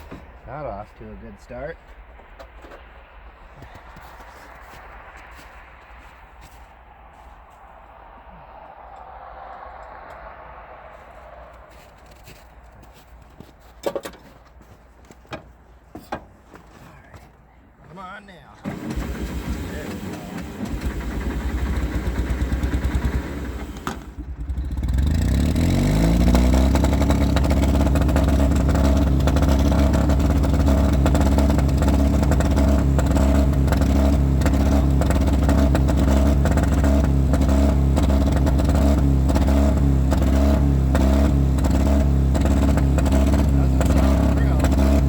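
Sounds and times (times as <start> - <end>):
tractor engine running: 0.0 - 14.7, 18.6 - 45.0.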